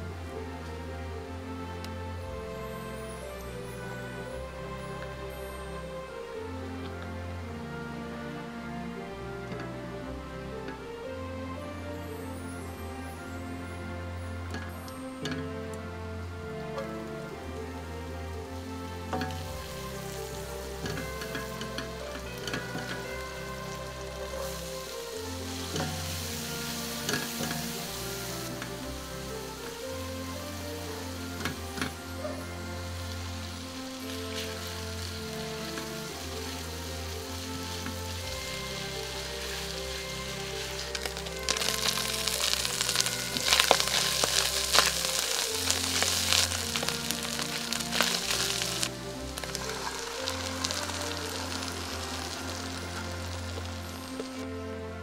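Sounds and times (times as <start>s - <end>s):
background music: 0.0s - 55.0s
onion sizzling in butter: 18.5s - 54.4s.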